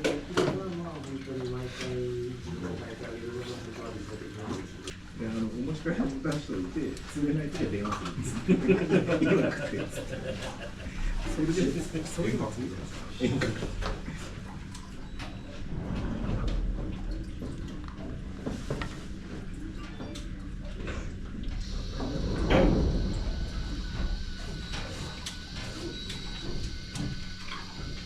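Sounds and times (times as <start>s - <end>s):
steady low hum: 0.0s - 28.0s
steady high whine: 20.8s - 28.0s.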